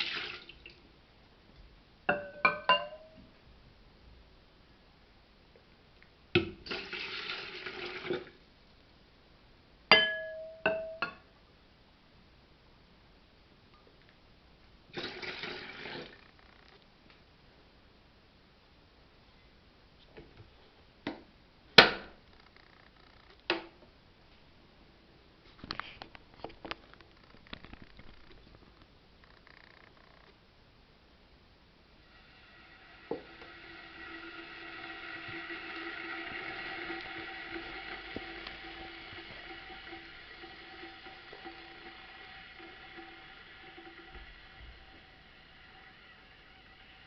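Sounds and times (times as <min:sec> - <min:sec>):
water running into kettle: 0:00.0 - 0:00.8, 0:06.4 - 0:08.4, 0:14.9 - 0:16.2, 0:32.0 - 0:47.0.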